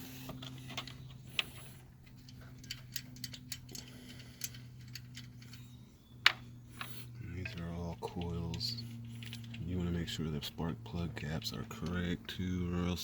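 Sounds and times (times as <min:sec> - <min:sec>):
steady low hum: 0:00.0 - 0:13.0
small metallic clicks and clinks: 0:00.3 - 0:09.7.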